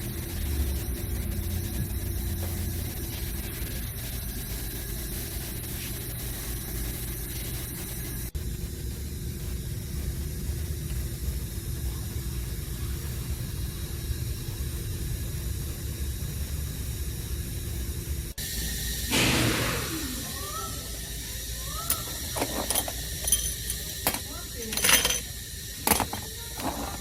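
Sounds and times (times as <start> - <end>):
car engine running: 0.0 - 7.5.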